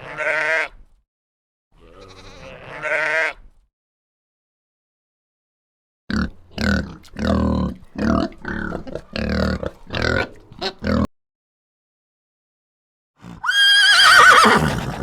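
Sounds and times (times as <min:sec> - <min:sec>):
pig grunting: 0:06.1 - 0:11.1.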